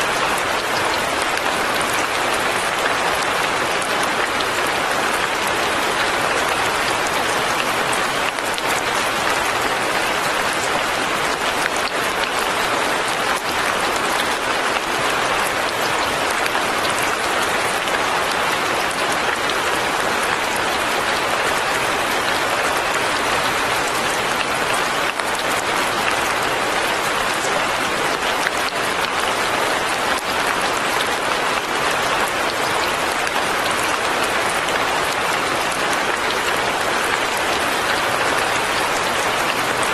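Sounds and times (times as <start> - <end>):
light rain falling: 0.0 - 39.9.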